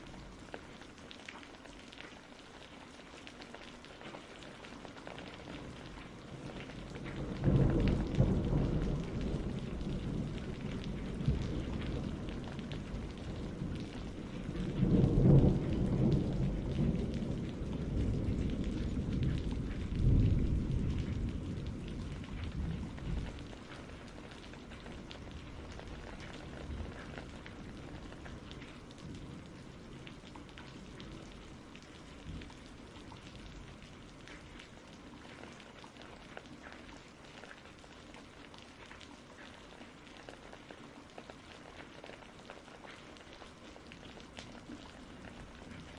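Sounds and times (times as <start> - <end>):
steady rain: 0.0 - 45.9
rolling thunder: 6.3 - 30.0.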